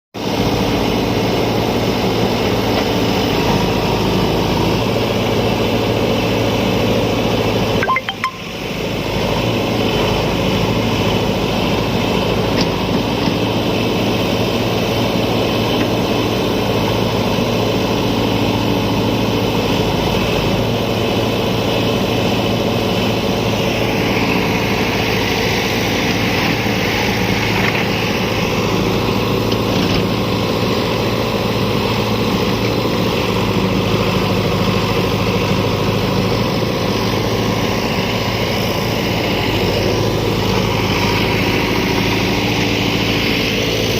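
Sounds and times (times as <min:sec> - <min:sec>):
tractor diesel engine running: 0:00.2 - 0:43.9.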